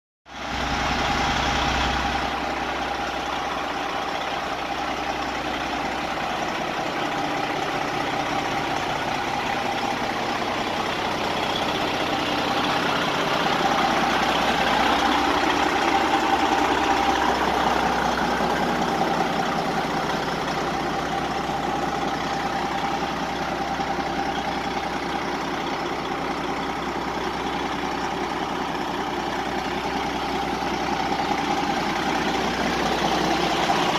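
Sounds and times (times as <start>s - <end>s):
truck diesel engine idling: 0.3s - 33.9s.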